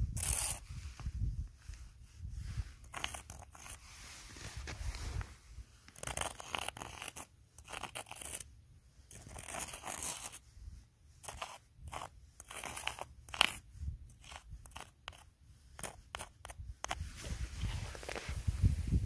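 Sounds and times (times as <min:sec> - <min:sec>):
footsteps crunching in snow: 0:03.8 - 0:05.4, 0:17.1 - 0:19.0.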